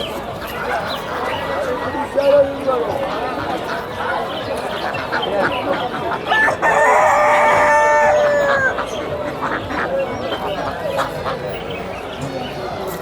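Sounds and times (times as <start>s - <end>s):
rooster crowing: 6.4s - 8.7s.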